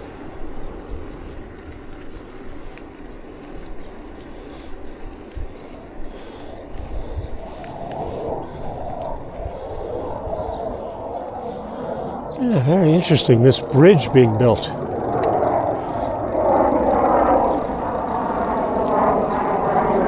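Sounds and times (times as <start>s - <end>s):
wind buffeting microphone: 0.0s - 12.4s
tyre and road noise: 12.4s - 19.6s.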